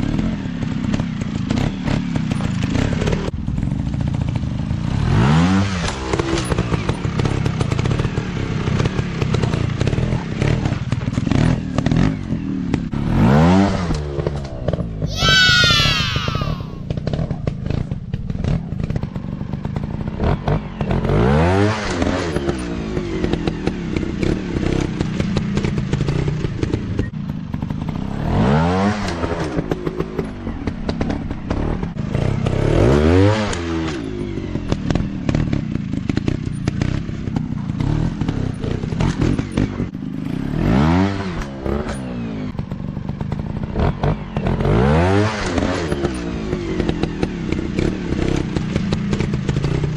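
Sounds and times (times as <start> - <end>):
dirt bike engines revving: 15.1 - 17.0.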